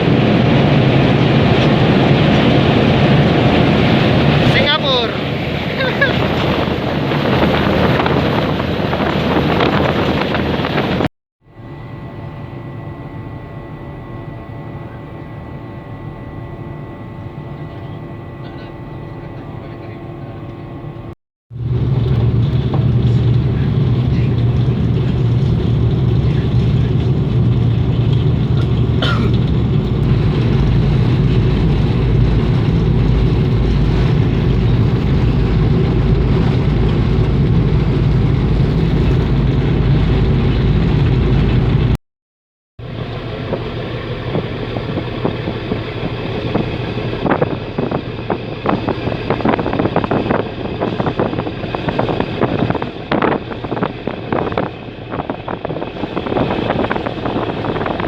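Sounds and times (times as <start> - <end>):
wind on microphone: 0.0 - 11.1, 20.7 - 42.0, 42.9 - 58.0
ferry engines droning: 0.0 - 42.0, 42.8 - 58.0.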